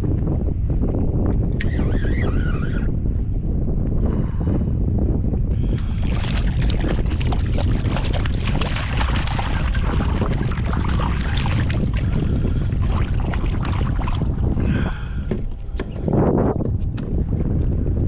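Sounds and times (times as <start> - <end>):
wind buffeting microphone: 0.0 - 18.0
water splashing: 5.7 - 17.8.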